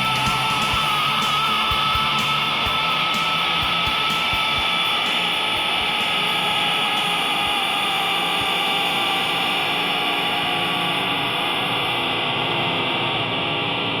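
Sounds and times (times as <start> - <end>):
guitar music: 0.0 - 6.4
loud rushing drone: 0.0 - 14.0.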